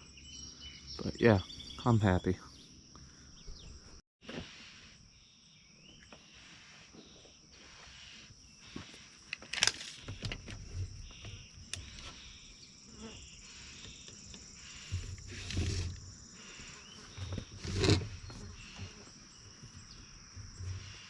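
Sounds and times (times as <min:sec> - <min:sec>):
insects shrilling: 0:04.4 - 0:21.0.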